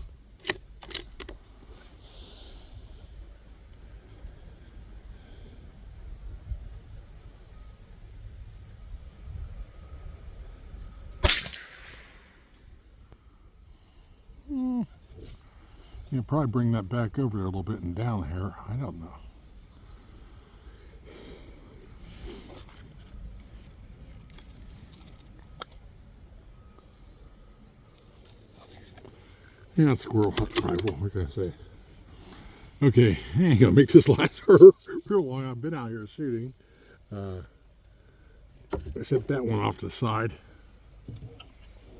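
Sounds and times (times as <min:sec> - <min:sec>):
sharp click: 0:00.0 - 0:01.4, 0:11.2 - 0:12.3
insects buzzing: 0:00.0 - 0:41.9
rifle shot with echo: 0:11.2 - 0:12.5.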